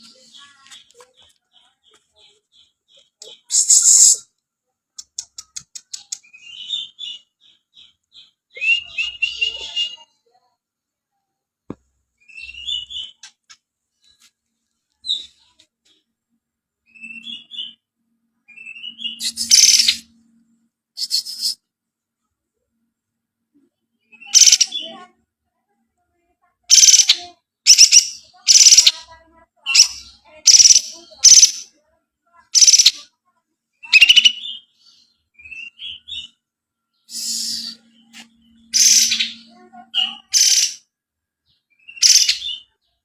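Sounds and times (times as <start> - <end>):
songbird singing high phrases: 0.0 - 4.4, 5.1 - 10.2, 12.2 - 13.4, 16.8 - 17.8, 18.4 - 20.2, 23.9 - 25.0, 26.7 - 31.8, 32.4 - 33.1, 33.8 - 43.0.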